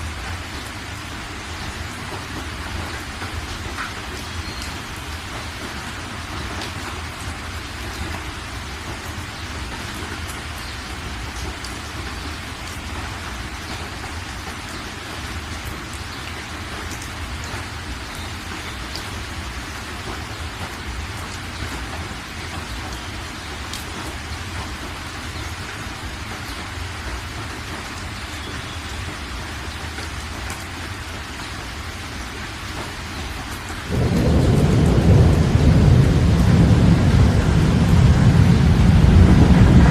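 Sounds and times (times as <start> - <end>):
heavy rain hiss: 0.0 - 39.9
raindrop ticks: 6.4 - 31.6.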